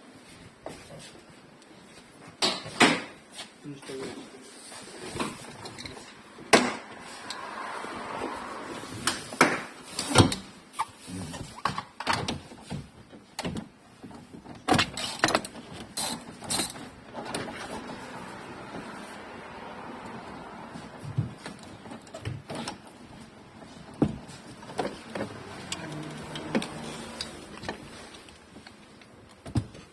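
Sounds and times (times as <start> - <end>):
clicks knocks and scrapes of hand work: 8.8 - 19.2, 20.0 - 29.9.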